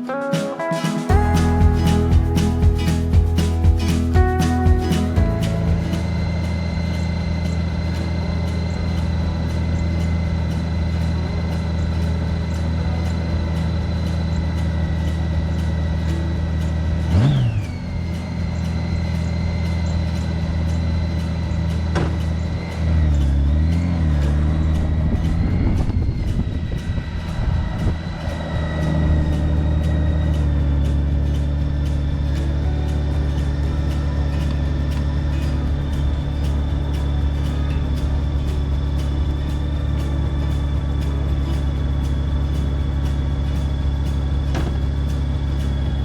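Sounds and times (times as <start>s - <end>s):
motorcycle engine running: 1.1s - 46.0s.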